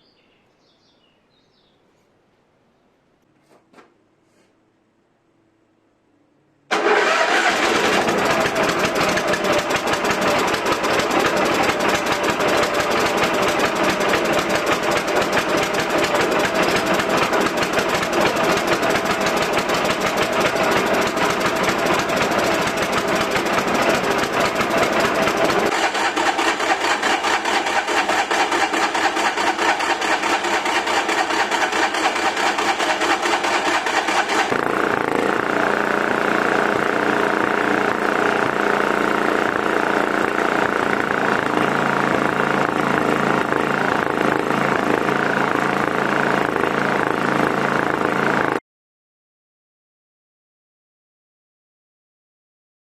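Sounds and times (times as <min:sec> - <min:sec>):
snowblower engine running: 0:06.7 - 0:48.6.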